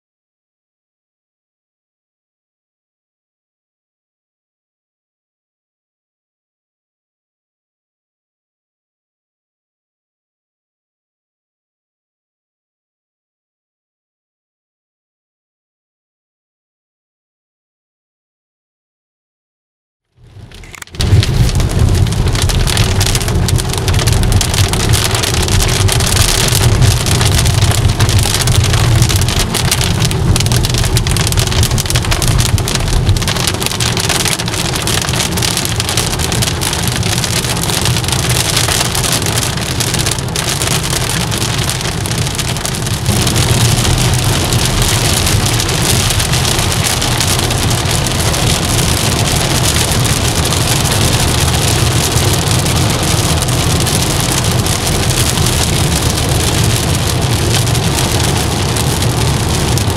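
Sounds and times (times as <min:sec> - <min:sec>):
car rumbling on wet road: 0:20.2 - 0:59.9
rain drumming on car roof: 0:20.2 - 0:59.9.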